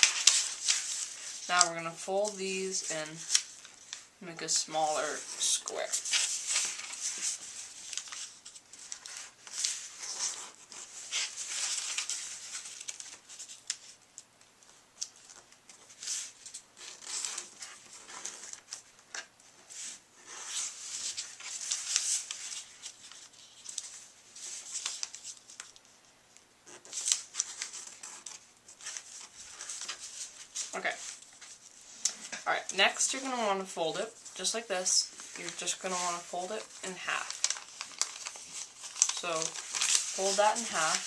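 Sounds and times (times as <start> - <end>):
paper crinkling and rustling: 0.0 - 26.0, 26.7 - 41.0.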